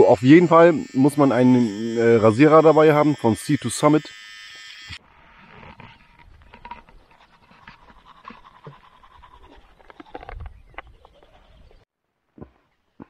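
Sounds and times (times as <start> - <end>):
electric razor buzzing: 0.0 - 5.0.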